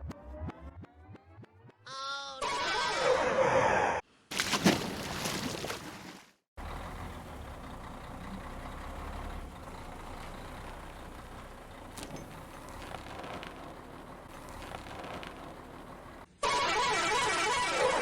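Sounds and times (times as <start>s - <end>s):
toy truck motor running: 16.4s - 18.0s.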